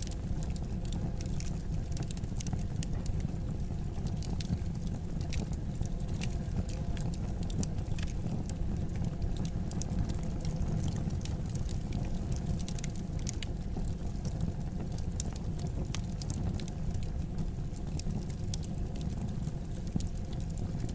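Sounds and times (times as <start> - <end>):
wood fire crackling and popping: 0.0 - 20.9.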